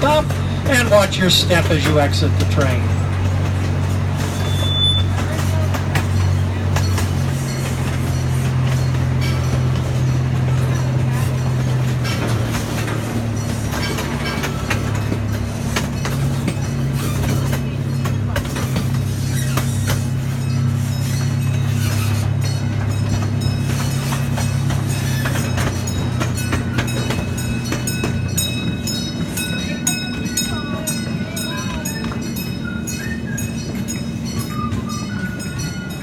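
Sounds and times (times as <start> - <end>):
miniature train engine drone: 0.0 - 36.0
wheels clicking and clanking: 0.0 - 36.0.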